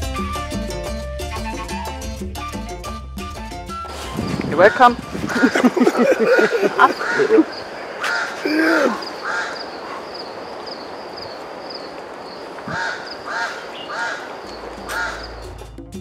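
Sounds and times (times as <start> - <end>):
bird cawing: 4.7 - 15.5.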